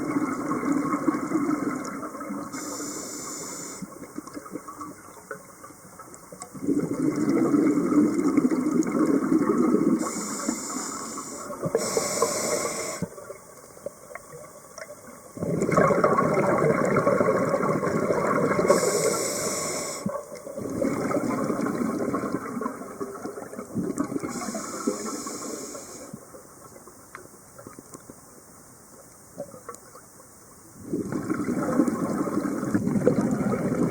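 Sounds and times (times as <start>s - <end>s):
hissing regulator inhalations: 2.6s - 3.9s, 10.0s - 13.1s, 18.6s - 20.2s, 24.3s - 26.2s
bubbling exhalations underwater: 6.6s - 10.1s, 15.4s - 19.2s, 20.6s - 24.5s, 30.8s - 33.9s.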